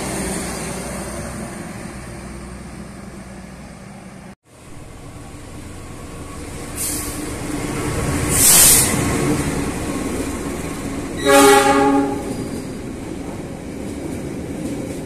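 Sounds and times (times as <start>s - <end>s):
train running on rails: 0.0s - 15.0s
train horn blast: 11.2s - 12.4s.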